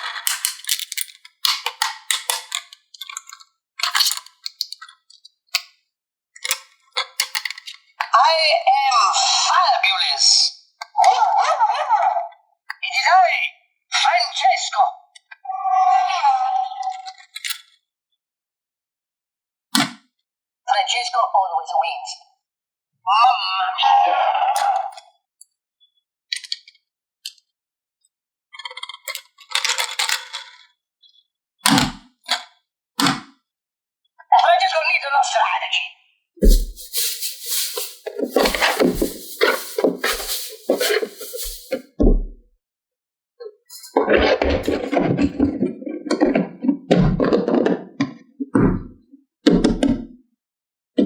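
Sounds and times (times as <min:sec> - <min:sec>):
toys clinking and rattling: 0:00.0 - 0:02.7, 0:36.4 - 0:41.8
plastic toys clicking: 0:00.0 - 0:04.7.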